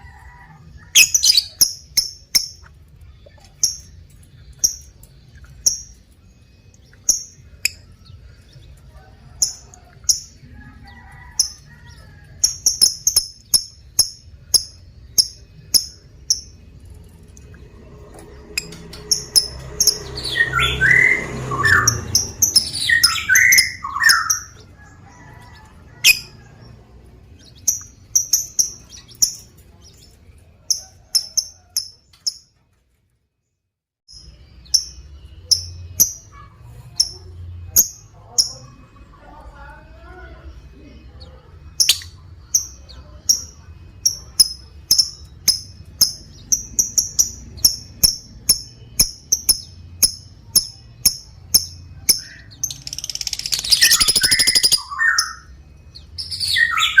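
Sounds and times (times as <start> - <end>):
lovebird chirping: 0.9 - 8.8, 11.4 - 17.5, 18.6 - 30.1, 40.5 - 57.0.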